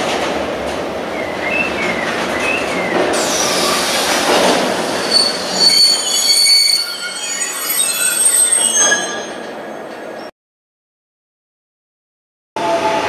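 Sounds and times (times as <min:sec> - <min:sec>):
freight train wheels on rails: 0:00.0 - 0:08.4
train wheels squealing: 0:01.5 - 0:10.3.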